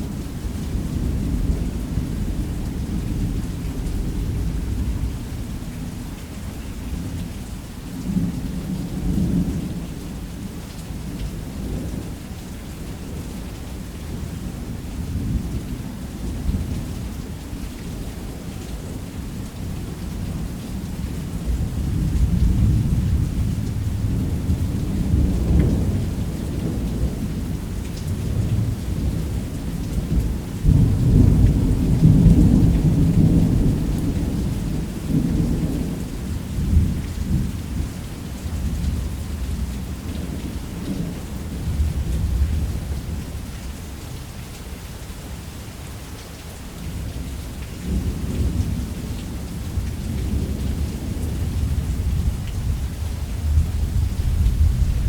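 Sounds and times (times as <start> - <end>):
steady rain: 0.0 - 55.0
rolling thunder: 47.8 - 55.0.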